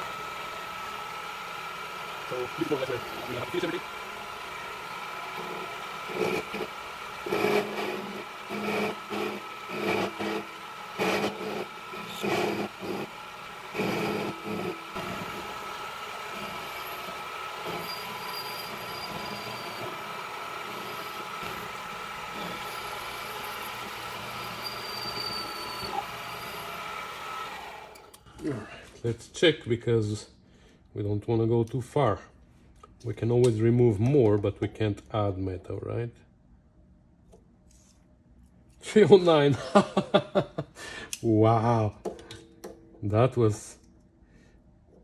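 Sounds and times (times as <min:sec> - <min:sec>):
lathe cutting noise: 0:00.0 - 0:28.1
metal lathe whining: 0:00.0 - 0:28.1
high squeal: 0:17.8 - 0:19.8, 0:24.5 - 0:26.6.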